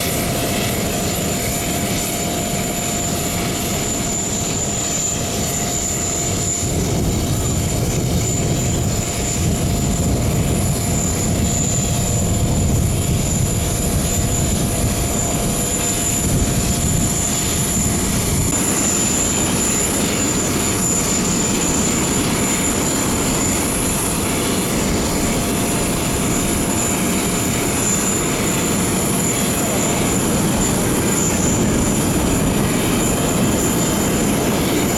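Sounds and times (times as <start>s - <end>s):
propellers rushing noise: 0.0s - 34.9s
thin steady whines: 0.0s - 34.9s.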